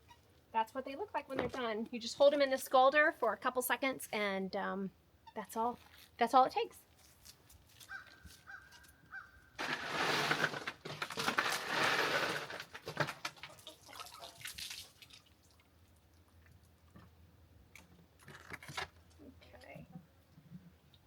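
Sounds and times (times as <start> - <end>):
rustling: 5.7 - 6.2, 6.8 - 13.8
ice water sloshing and splashing: 9.6 - 16.0
water dripping: 13.6 - 17.0.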